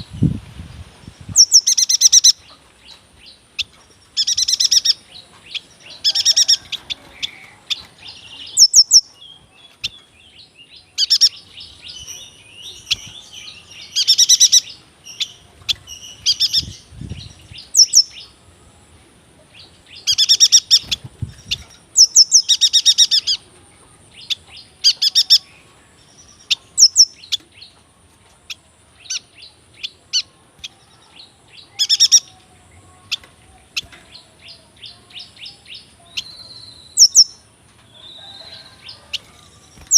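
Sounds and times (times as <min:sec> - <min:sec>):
bird singing ringing phrases: 0:01.3 - 0:18.4, 0:19.9 - 0:39.9.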